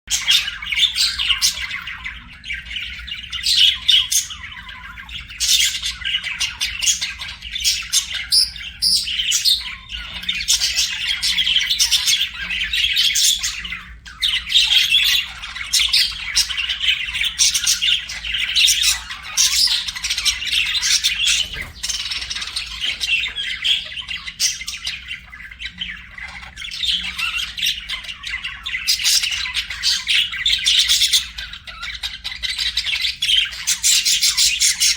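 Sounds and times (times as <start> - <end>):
budgerigars chattering and chirping: 0.1 - 34.9.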